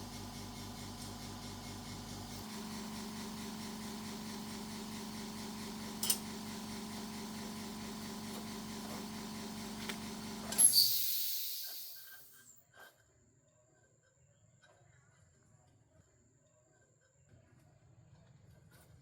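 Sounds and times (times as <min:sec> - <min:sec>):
loud hiss: 0:10.6 - 0:12.3.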